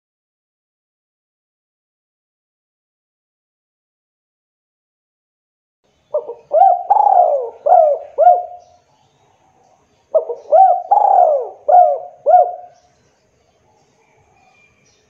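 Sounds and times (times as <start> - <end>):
dove cooing: 6.1 - 8.8, 10.1 - 12.8.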